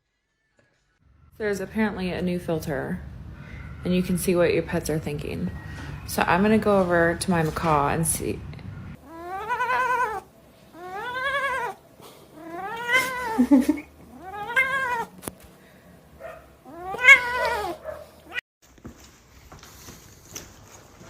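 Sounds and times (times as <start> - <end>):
cat meowing: 8.9 - 13.4, 14.1 - 15.1, 16.6 - 18.4.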